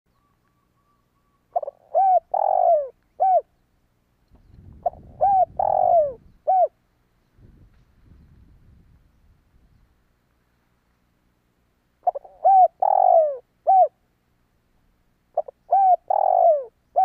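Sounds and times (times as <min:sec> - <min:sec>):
dove cooing: 0:00.8 - 0:03.5, 0:04.8 - 0:06.8, 0:12.0 - 0:14.0, 0:15.3 - 0:17.0.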